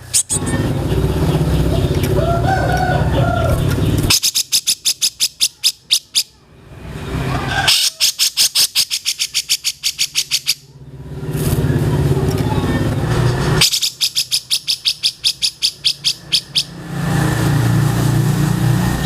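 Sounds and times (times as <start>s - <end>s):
songbird trilling chip notes: 0.0s - 0.6s, 3.2s - 6.4s, 7.8s - 10.7s, 13.6s - 16.8s.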